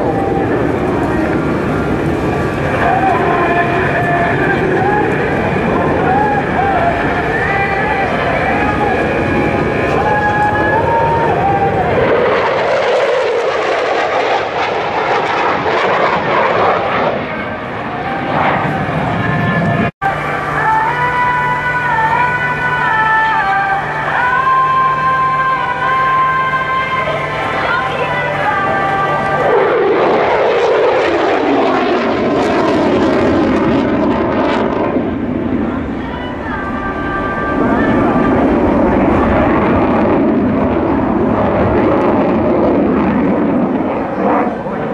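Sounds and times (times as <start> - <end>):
jet engine roaring: 0.0 - 44.9.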